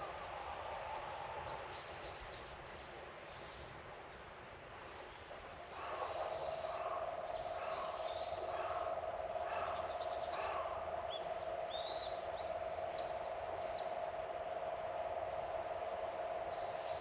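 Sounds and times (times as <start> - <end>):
steady mid-pitched hum: 0.0 - 17.0
garden birds calling: 5.4 - 14.2.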